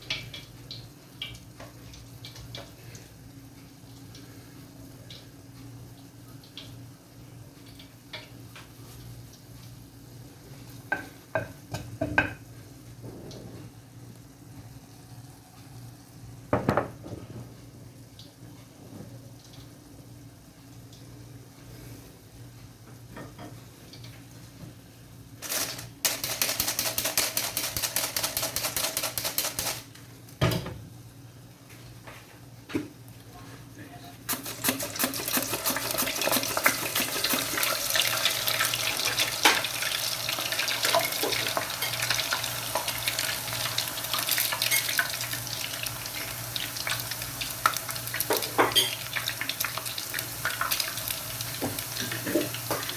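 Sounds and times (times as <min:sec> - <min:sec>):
utensil beating in a bowl: 0:26.1 - 0:29.8, 0:34.3 - 0:45.9.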